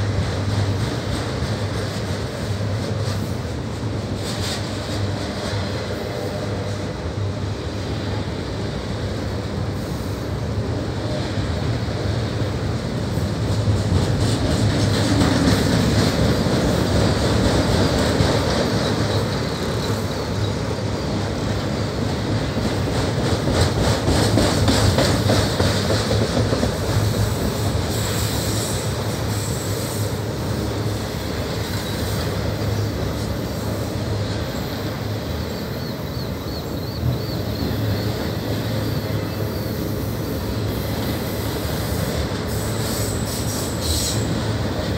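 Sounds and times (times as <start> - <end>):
steel wheels rumbling on rail: 0.0 - 44.9.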